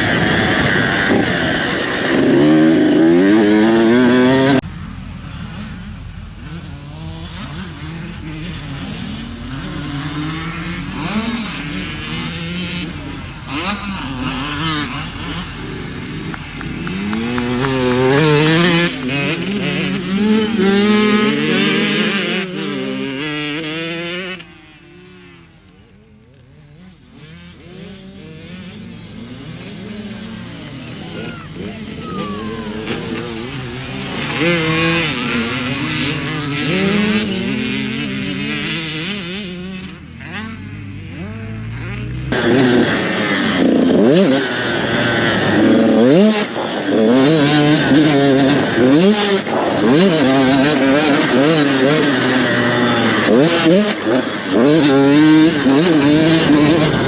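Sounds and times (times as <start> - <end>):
dirt bike engine revving close: 0.0 - 57.0
distant dirt bike engines: 0.0 - 57.0.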